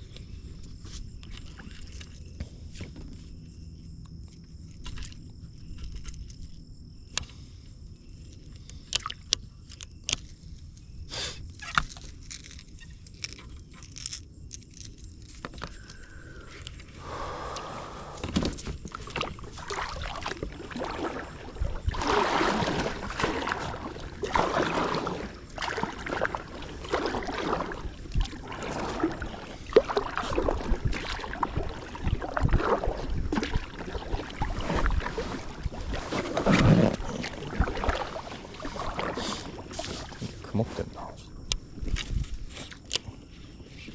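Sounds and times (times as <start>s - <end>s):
paddle strokes splashing: 15.7s - 41.0s.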